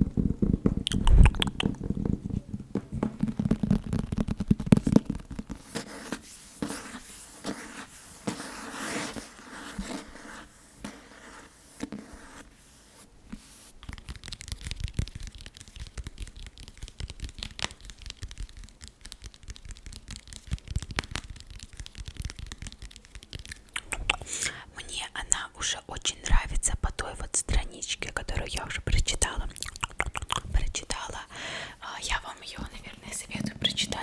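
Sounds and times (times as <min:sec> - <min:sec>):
fast tapping on a book: 0:00.0 - 0:10.1, 0:13.4 - 0:24.2
fingernails scratching a book: 0:05.5 - 0:13.7.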